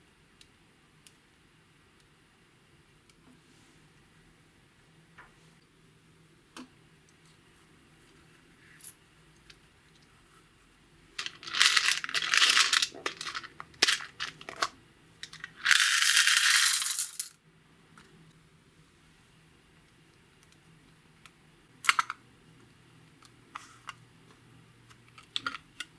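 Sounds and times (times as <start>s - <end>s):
small objects rattling in a container: 11.2s - 17.4s.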